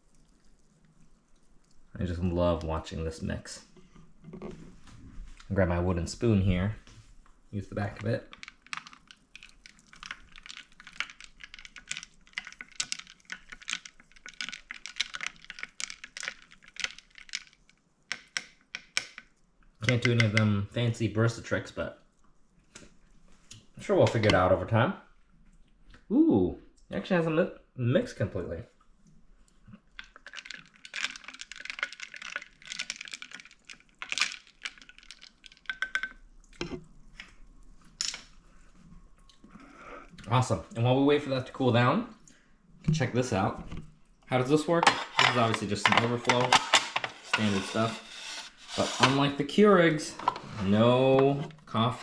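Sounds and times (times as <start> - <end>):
spoon stirring iced drink: 8.2 - 19.3, 30.0 - 36.9, 44.8 - 49.2
ice cubes clinking on glass: 30.1 - 36.2.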